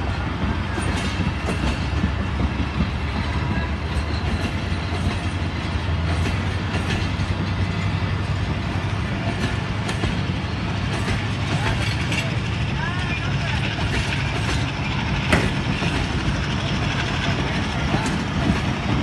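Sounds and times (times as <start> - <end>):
train rumbling along track: 0.0 - 19.0
wheels clicking over rail joints: 0.1 - 19.0.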